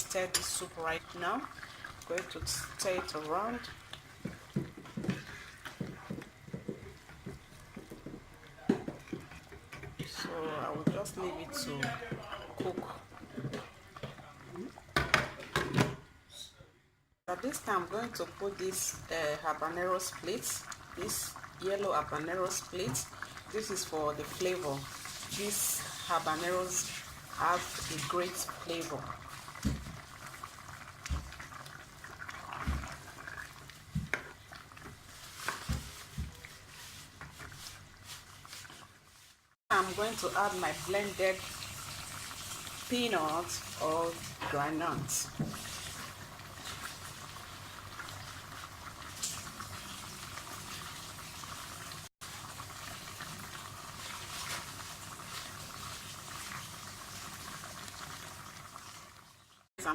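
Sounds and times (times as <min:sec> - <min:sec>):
soup bubbling in a pot: 0:00.0 - 0:15.6, 0:17.8 - 0:59.7.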